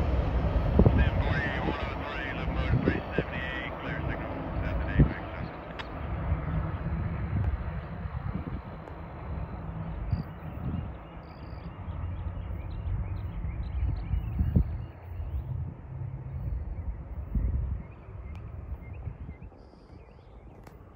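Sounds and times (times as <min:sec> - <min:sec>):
wind on microphone: 0:00.0 - 0:11.1, 0:12.4 - 0:20.6
freight train rumbling: 0:00.0 - 0:11.2
birds chirping: 0:00.0 - 0:20.9.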